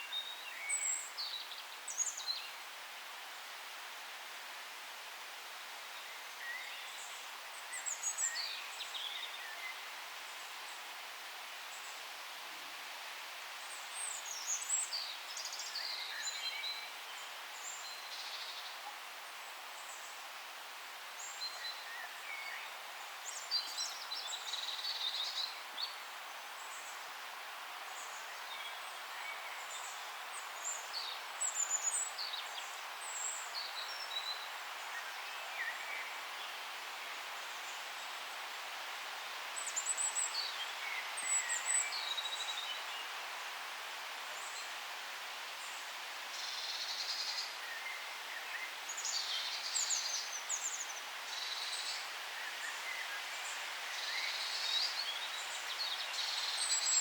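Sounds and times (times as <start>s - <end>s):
forest background hiss: 0.0s - 57.0s.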